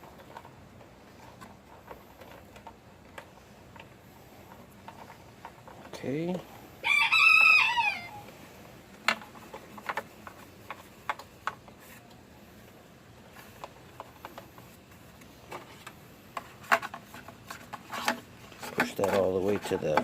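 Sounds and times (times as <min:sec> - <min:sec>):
plastic parts clicking: 0:08.9 - 0:12.2, 0:15.2 - 0:20.0.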